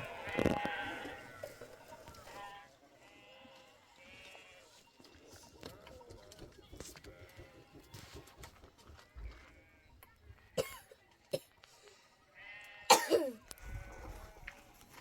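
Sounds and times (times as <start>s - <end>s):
animals bleating: 0.0s - 4.9s, 6.8s - 8.0s, 12.3s - 15.0s.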